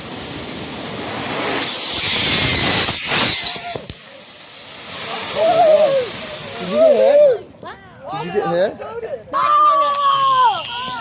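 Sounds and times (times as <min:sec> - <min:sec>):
firework bang: 0:00.0 - 0:06.9
firework screeching whistle: 0:00.0 - 0:07.4
firework hissing and spraying: 0:00.0 - 0:07.5.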